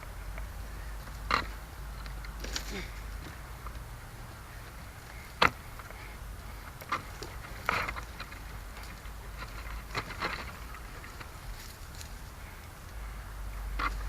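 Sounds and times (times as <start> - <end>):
low wind rumble: 0.0 - 14.0
twigs snapping and rustling: 1.0 - 3.8.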